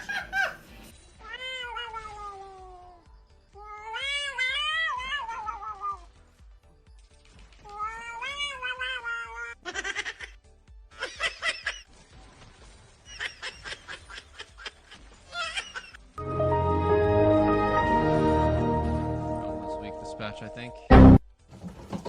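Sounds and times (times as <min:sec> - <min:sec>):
music: 0:00.0 - 0:13.1, 0:15.9 - 0:22.0
cat meowing and yowling: 0:01.2 - 0:06.1, 0:07.6 - 0:09.6.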